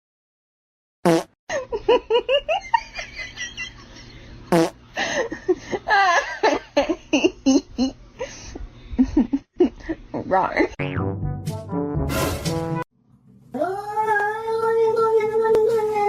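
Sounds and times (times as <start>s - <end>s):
people laughing and giggling: 5.0s - 10.0s.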